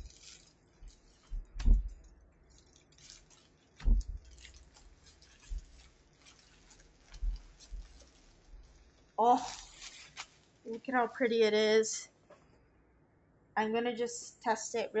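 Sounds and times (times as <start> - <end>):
packaging rustling: 0.0 - 10.8
dull thumps: 0.8 - 2.2, 3.8 - 9.1.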